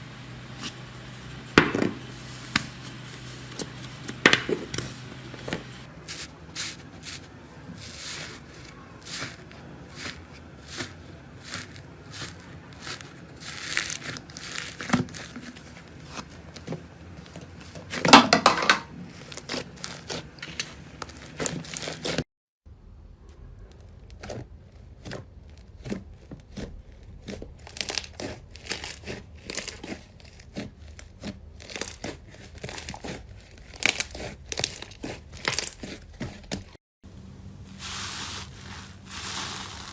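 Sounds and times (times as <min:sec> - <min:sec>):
slime crackling and popping: 0:10.7 - 0:15.4, 0:19.1 - 0:22.2, 0:26.5 - 0:36.0.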